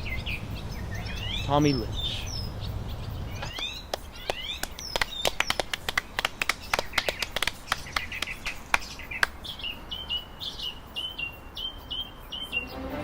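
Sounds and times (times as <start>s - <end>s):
songbird chirping: 0.0s - 13.0s
sharp clicks: 3.4s - 9.4s.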